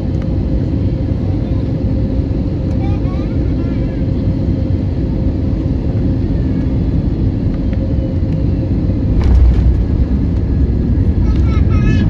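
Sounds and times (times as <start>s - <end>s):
aircraft cabin rumble: 0.0s - 12.0s.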